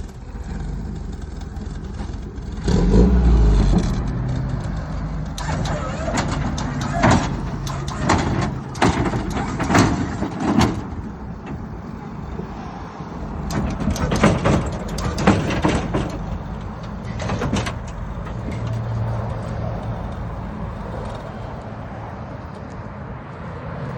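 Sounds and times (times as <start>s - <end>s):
mini truck engine running: 0.0s - 21.6s
mechanical clunks: 3.5s - 12.5s, 13.2s - 20.2s
pneumatic hissing bursts: 5.4s - 10.2s.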